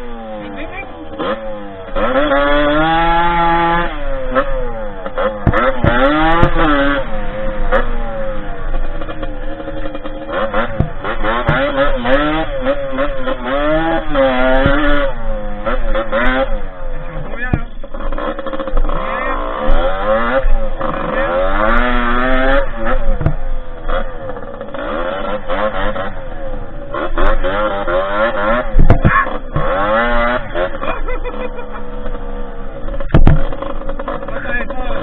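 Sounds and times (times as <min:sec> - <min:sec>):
dirt bike engine revving: 0:00.0 - 0:35.0
sharp knocks: 0:05.4 - 0:06.8, 0:09.0 - 0:12.8, 0:14.5 - 0:15.1, 0:23.1 - 0:23.5, 0:28.7 - 0:29.9, 0:32.9 - 0:34.2.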